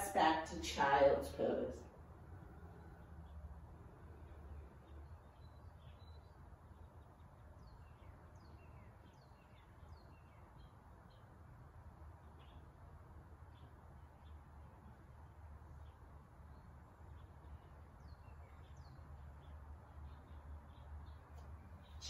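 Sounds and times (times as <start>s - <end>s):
low room hum: 0.0s - 22.0s
faint bird chirps: 1.8s - 14.8s.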